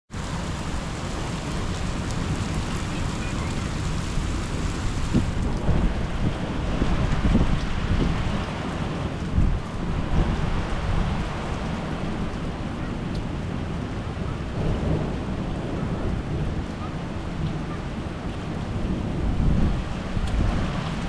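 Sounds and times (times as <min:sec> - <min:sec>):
thunder rumbling: 0:00.1 - 0:07.4
steady rain: 0:00.1 - 0:21.0.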